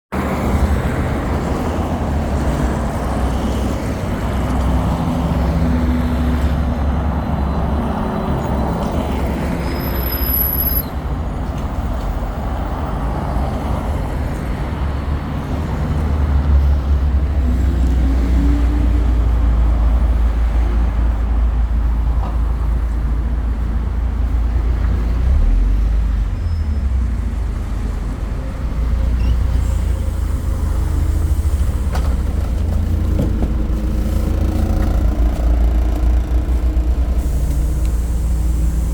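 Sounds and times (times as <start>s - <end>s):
bus engine rumble: 0.1s - 38.9s
road noise: 0.1s - 38.9s
high electronic beep: 9.6s - 11.0s.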